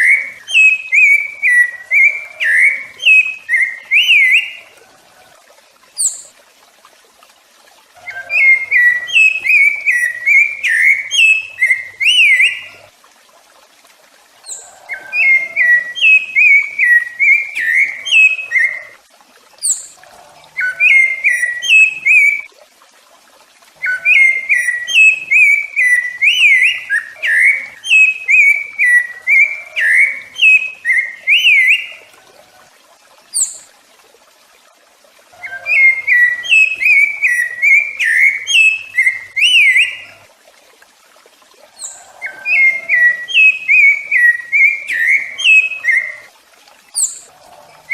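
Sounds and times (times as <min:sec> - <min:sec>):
thrush singing whistled notes: 0:00.0 - 0:04.7, 0:08.0 - 0:12.8, 0:14.4 - 0:19.0, 0:20.6 - 0:22.5, 0:23.8 - 0:32.1, 0:35.4 - 0:40.2, 0:41.8 - 0:46.3.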